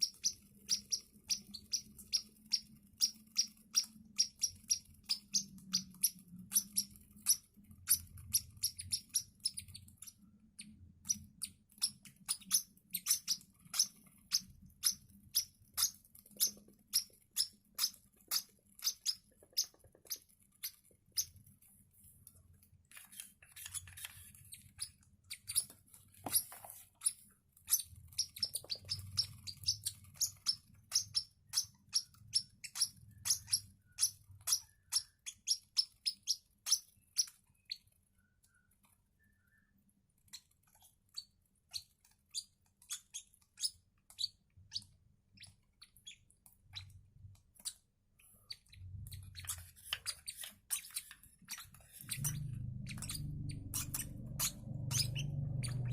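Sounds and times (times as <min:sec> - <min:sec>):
chicks cheeping: 0:00.0 - 0:21.4, 0:26.3 - 0:37.9, 0:47.6 - 0:55.9.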